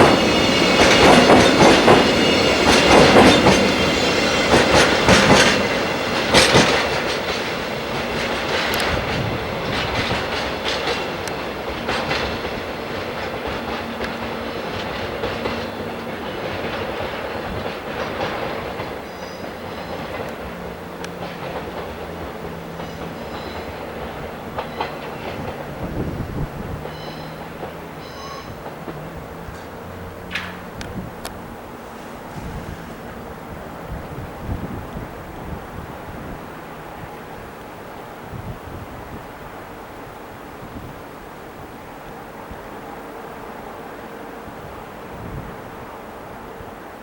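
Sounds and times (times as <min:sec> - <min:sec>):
freight train wheels clacking: 0:00.0 - 0:33.4.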